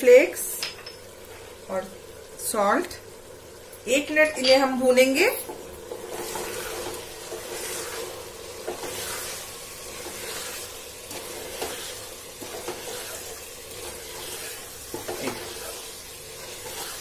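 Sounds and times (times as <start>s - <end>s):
meat sizzling in oil: 0.0s - 17.0s
spatula scraping a pan: 5.9s - 17.0s.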